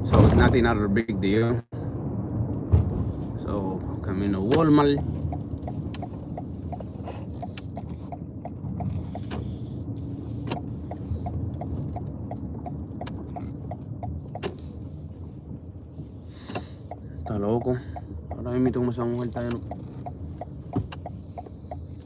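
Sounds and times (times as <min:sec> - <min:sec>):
road and engine rumble: 0:00.0 - 0:22.0
turn signal clicking: 0:04.4 - 0:22.0.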